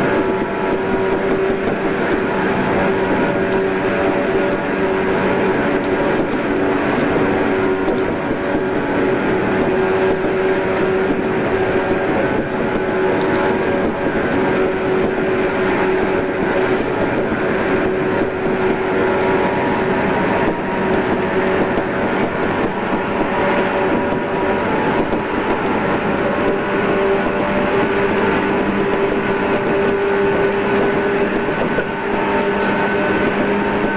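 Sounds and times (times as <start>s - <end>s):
train motor hum: 0.0s - 33.9s
train wheels rumbling on rail: 0.0s - 33.9s.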